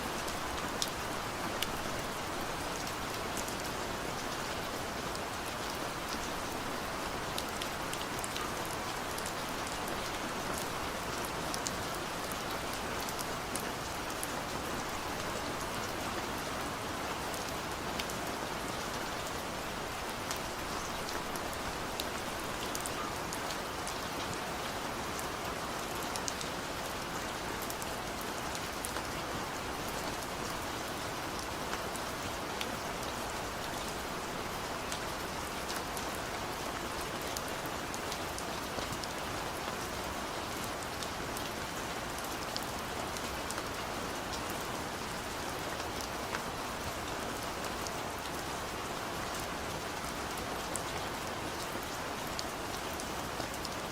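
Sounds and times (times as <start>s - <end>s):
steady rain falling: 0.0s - 53.9s
raindrops ticking on a surface: 17.1s - 53.9s.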